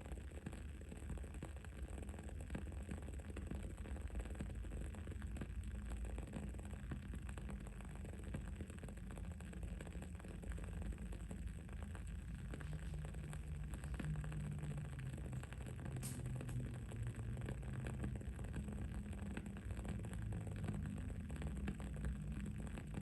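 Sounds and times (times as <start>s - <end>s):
low background hum: 0.0s - 23.0s
wooden candle wick crackling: 11.8s - 17.0s.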